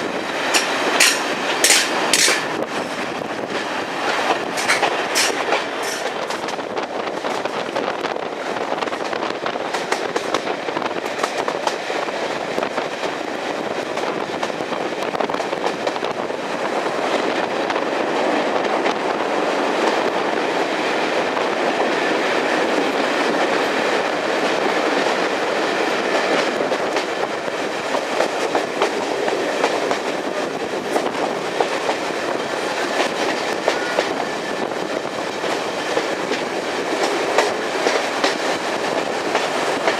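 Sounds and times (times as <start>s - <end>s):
wheels clicking over rail joints: 0.0s - 7.8s, 21.3s - 39.9s
train rumbling along track: 0.0s - 39.9s.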